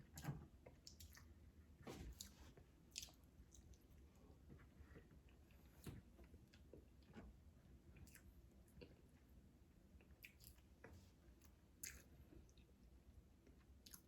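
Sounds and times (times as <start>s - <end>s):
faint chewing: 0.0s - 14.0s.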